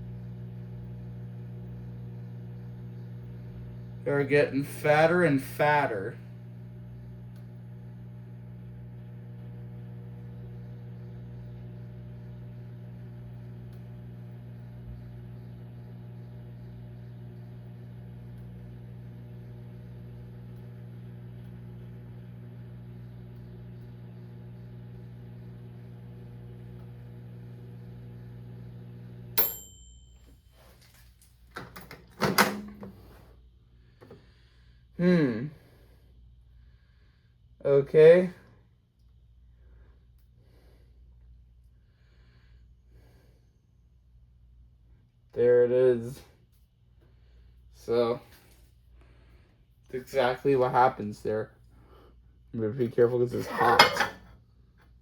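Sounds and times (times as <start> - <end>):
microwave oven humming: 0.0 - 30.7, 31.5 - 43.4, 48.9 - 55.0
microwave beep: 22.8 - 30.3.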